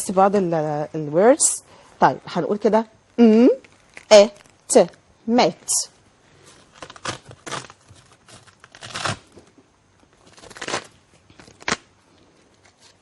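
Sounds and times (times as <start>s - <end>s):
rustling scraping handling noise: 6.3s - 13.0s.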